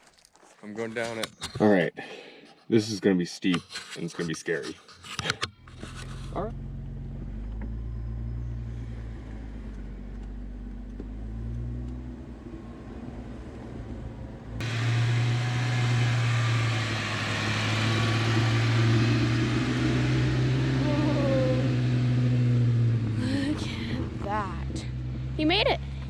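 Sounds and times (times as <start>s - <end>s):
vehicle engine running at low revs: 5.6s - 26.0s.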